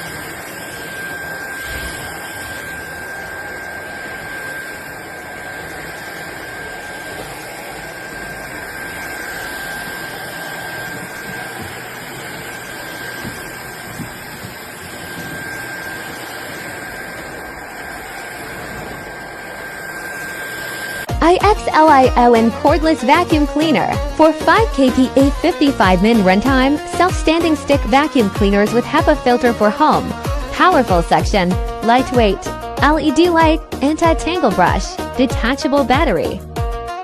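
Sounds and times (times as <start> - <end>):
stick vacuum running: 0.0 - 37.0.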